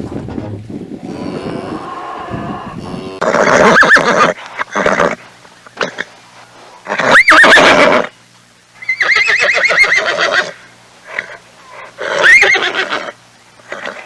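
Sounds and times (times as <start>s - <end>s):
horse whinnying: 1.3s - 5.2s, 6.9s - 8.1s, 8.8s - 14.0s.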